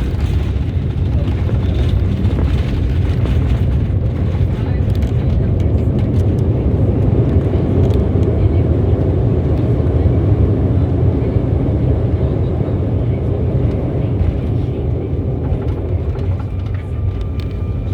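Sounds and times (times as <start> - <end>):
jet airliner rumble: 0.0 - 17.9.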